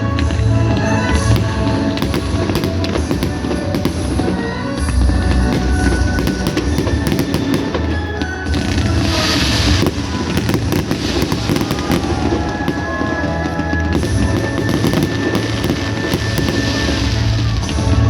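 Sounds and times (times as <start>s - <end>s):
fireworks crackling and booming: 0.0s - 18.0s
music playing: 0.0s - 18.0s
firework hissing burst: 5.5s - 13.0s, 14.0s - 17.5s.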